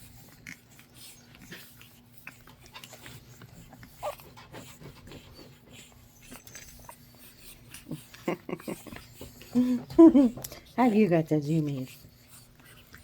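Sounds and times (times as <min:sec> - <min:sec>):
puppy squeaks: 0:04.0 - 0:04.3.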